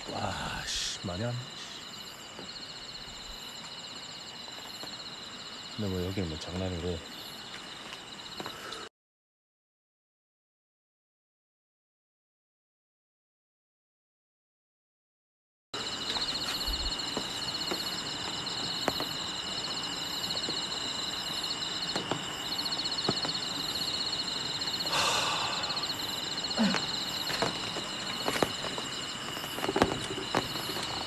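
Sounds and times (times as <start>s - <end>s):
continuous high tone: 0.0s - 8.9s, 15.8s - 31.0s
insects trilling: 0.0s - 8.9s, 15.8s - 31.0s.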